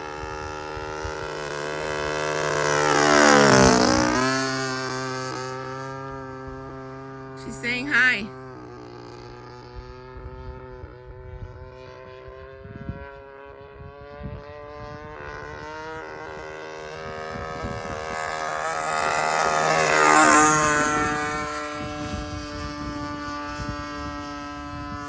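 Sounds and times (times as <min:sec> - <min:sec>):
model plane engine passing: 0:00.0 - 0:25.0
wind on microphone: 0:10.1 - 0:25.0.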